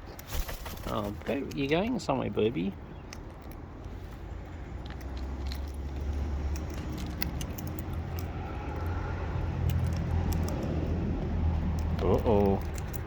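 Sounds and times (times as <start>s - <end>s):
bird beaks cracking seed: 4.8s - 9.0s.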